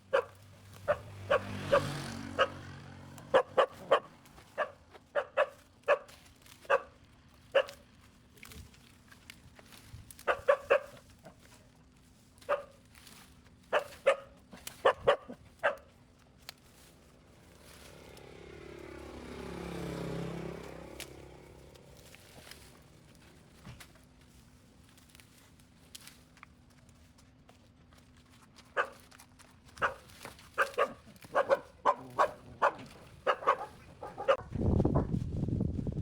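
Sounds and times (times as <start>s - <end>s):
dog barking: 0.0s - 7.8s, 10.2s - 11.1s, 12.4s - 12.8s, 13.7s - 15.9s, 28.7s - 29.1s, 29.8s - 34.5s
vehicle passing: 0.0s - 8.0s, 16.4s - 24.6s, 28.8s - 36.0s.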